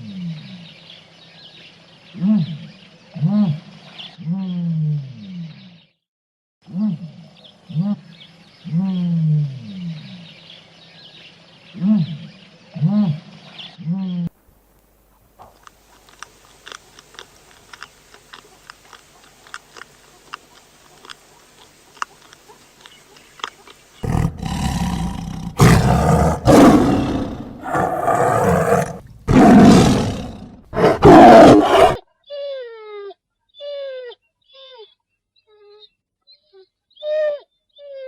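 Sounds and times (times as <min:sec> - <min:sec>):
big cat roaring: 0:24.0 - 0:32.0.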